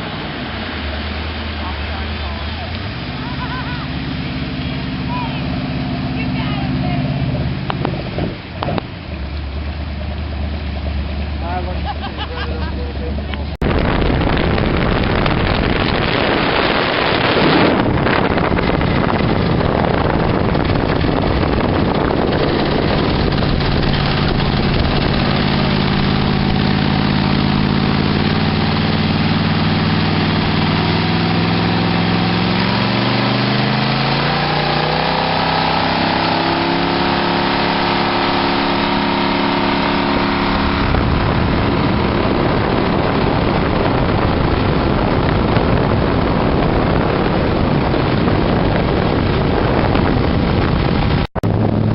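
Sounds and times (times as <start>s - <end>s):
motorboat engine running: 0.0s - 51.9s
wind and water rushing: 0.0s - 51.9s.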